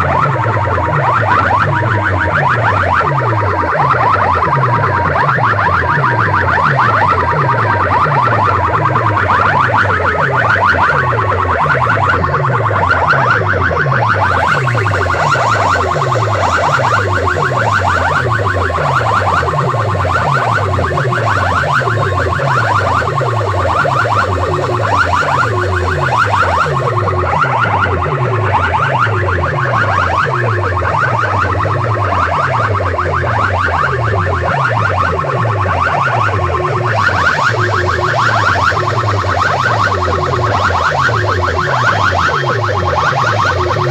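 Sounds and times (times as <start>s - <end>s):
electronic siren-like sound: 0.0s - 43.9s.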